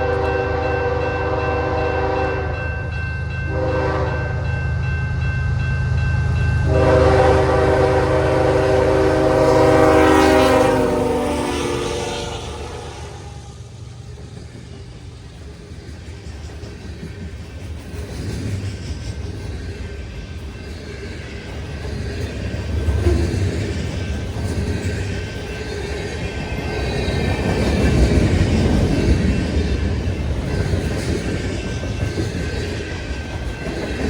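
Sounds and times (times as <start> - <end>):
locomotive air horn: 0.0 - 2.6, 3.5 - 4.4, 6.7 - 13.6
passing train rumble: 0.0 - 34.0.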